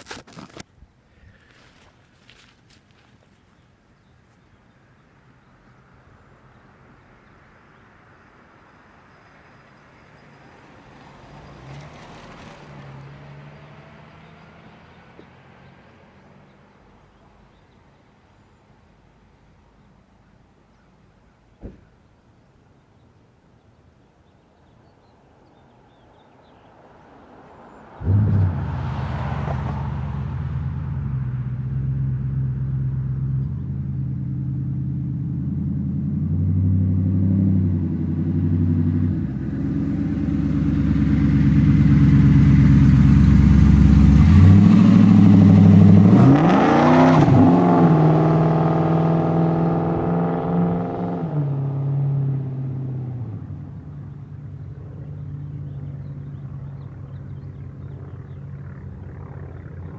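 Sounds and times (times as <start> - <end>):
car exhaust driving past: 10.0 - 16.0, 26.7 - 59.9.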